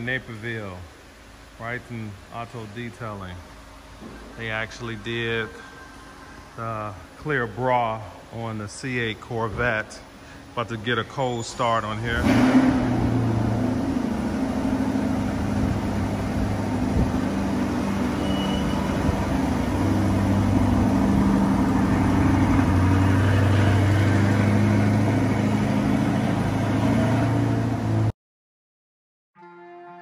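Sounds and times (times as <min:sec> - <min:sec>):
car engine idling: 0:11.6 - 0:28.1.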